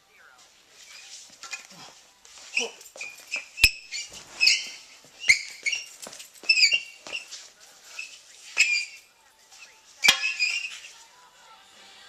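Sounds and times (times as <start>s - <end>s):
bird chirping and squawking: 3.0s - 7.0s.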